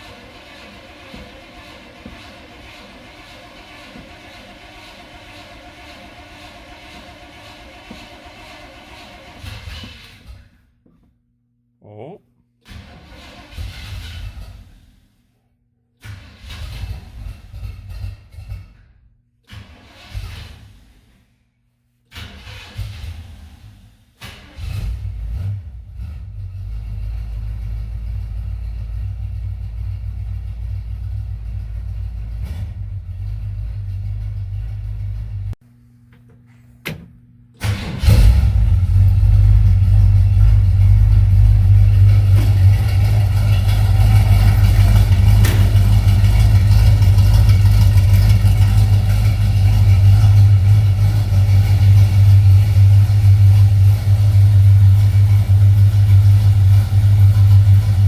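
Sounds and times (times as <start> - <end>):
pickup engine idling: 0.0 - 9.4, 26.0 - 35.6, 37.7 - 58.0.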